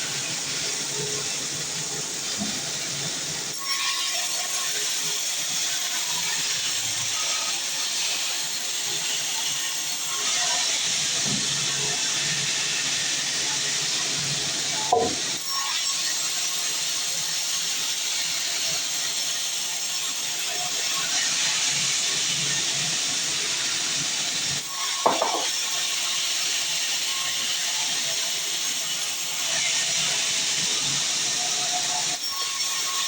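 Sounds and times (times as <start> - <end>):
band saw cutting log: 6.2 - 16.7, 24.6 - 26.6
sharp knock: 14.9 - 15.2, 25.1 - 25.5.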